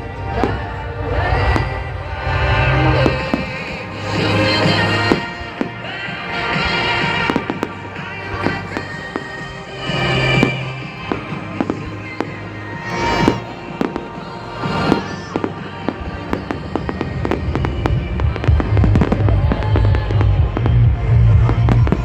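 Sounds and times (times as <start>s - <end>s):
fireworks bangs and crackles: 0.0s - 22.0s
music with bass: 16.7s - 22.0s.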